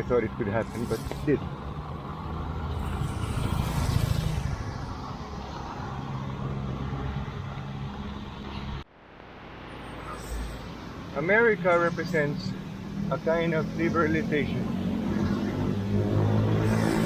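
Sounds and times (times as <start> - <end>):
street noise: 0.0 - 17.0.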